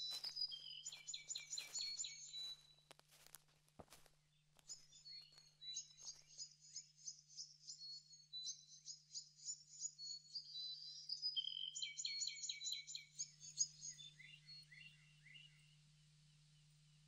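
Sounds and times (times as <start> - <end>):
birds chirping: 0.0 - 2.9, 4.3 - 7.4.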